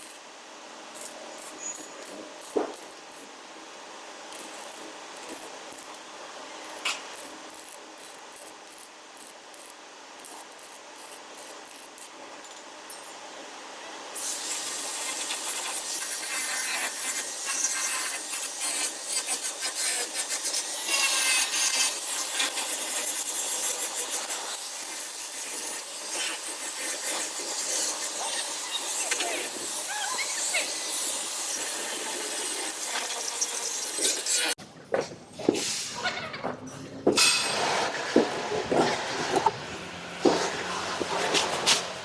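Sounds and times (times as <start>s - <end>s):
tool scraping sheet metal: 14.2s - 34.6s, 37.2s - 42.0s.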